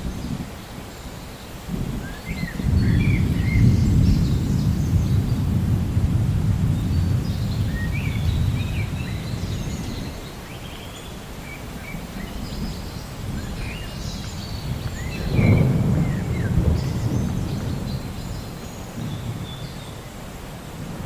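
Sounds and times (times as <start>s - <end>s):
rolling thunder: 1.7s - 10.1s, 12.6s - 21.0s
small birds chirping: 6.6s - 20.9s.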